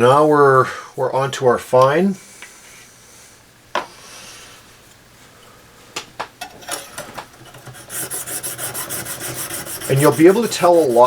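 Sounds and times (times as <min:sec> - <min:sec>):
hone stone rasping on blade: 0:06.4 - 0:11.0.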